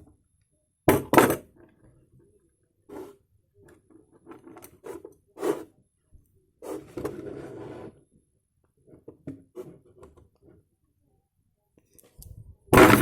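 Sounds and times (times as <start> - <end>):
plastic bottle scraping: 12.8 - 13.0.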